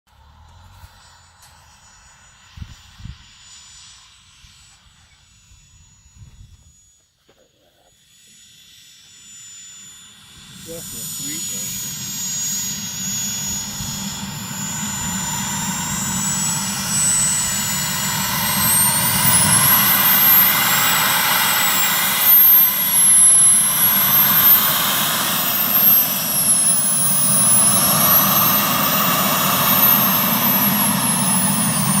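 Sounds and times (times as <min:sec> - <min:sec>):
model jet turbine whine: 0:00.1 - 0:32.0.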